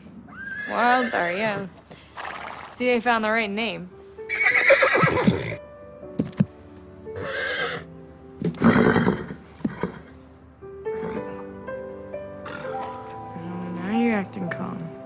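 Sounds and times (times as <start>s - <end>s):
horse snorting: 0.5s - 2.8s, 8.4s - 10.2s, 10.9s - 11.4s, 12.4s - 13.0s
soft music of held notes: 2.8s - 15.0s.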